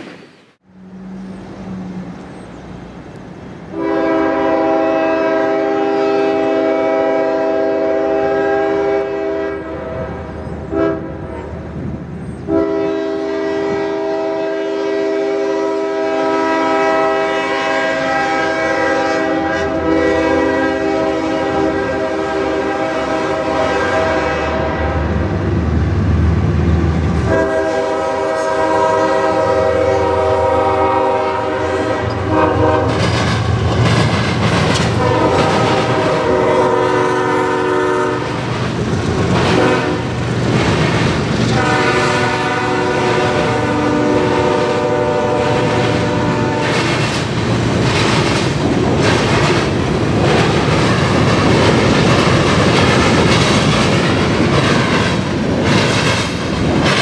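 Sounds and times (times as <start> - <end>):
locomotive horn blasts: 3.7 - 11.5, 12.5 - 25.2, 27.3 - 33.0, 34.9 - 38.4, 39.5 - 40.1, 41.5 - 46.9
freight cars rolling: 31.6 - 36.8, 38.3 - 57.0
wheels clacking over crossing: 32.9 - 36.2, 45.4 - 57.0.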